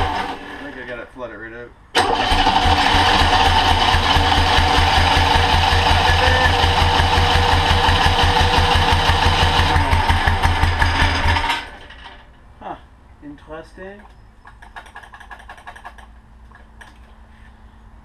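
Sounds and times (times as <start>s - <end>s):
trike engine rapid firing: 2.0s - 12.2s, 14.6s - 16.1s.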